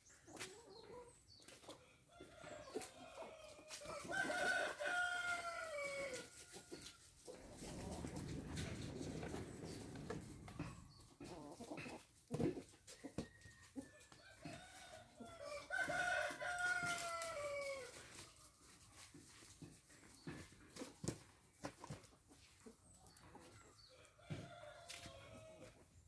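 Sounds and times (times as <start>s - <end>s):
rooster crowing: 3.3s - 6.6s, 14.4s - 18.0s.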